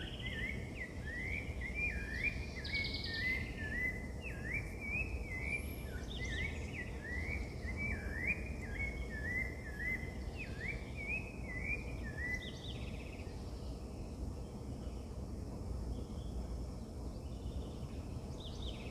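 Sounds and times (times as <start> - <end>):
songbird whistling: 0.0 - 13.0.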